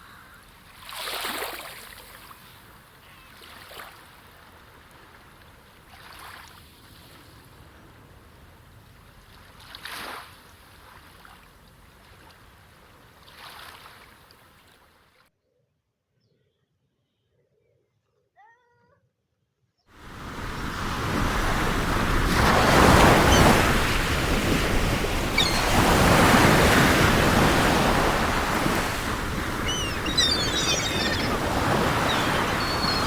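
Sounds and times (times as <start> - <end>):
waves washing onto shore: 20.0 - 33.0
high bird chirps: 25.4 - 26.2, 29.4 - 33.0.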